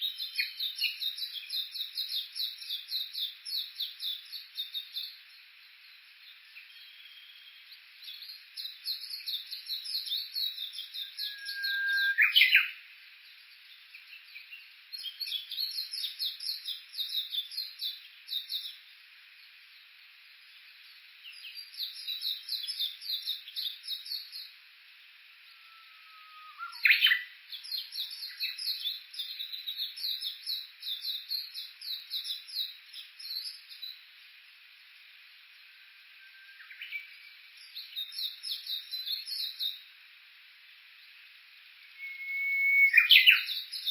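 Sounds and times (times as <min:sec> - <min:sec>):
bird whistled song: 0:06.5 - 0:12.8, 0:25.5 - 0:34.0, 0:36.1 - 0:39.8, 0:41.8 - 0:43.9.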